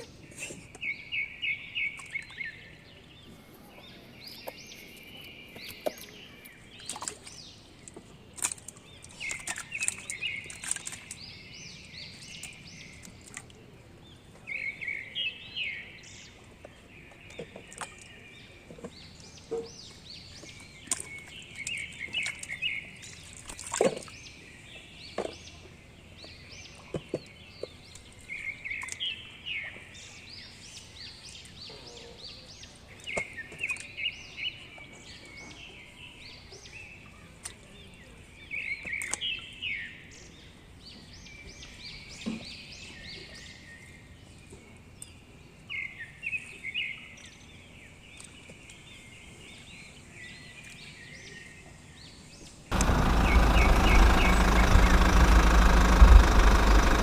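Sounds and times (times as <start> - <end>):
small birds chirping: 0.0 - 57.0
sharp clicks: 52.7 - 57.0.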